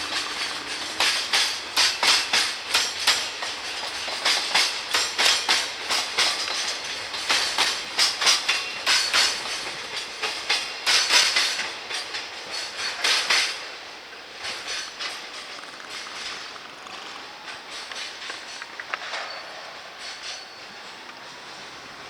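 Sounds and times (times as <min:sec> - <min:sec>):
train wheels clacking over joints: 0:00.0 - 0:22.0.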